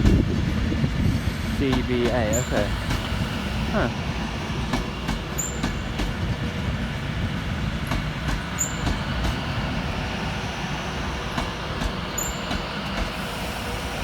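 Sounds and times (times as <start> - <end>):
electric train rumble: 0.0 - 14.0.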